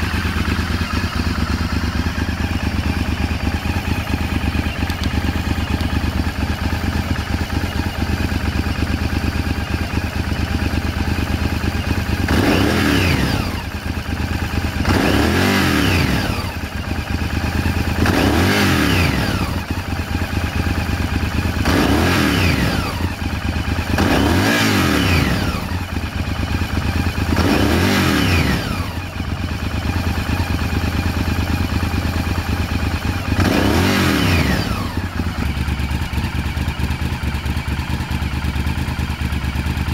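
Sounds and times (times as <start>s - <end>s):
motorcycle throttle blips: 0.0s - 13.2s
motorcycle engine idling: 0.0s - 39.9s.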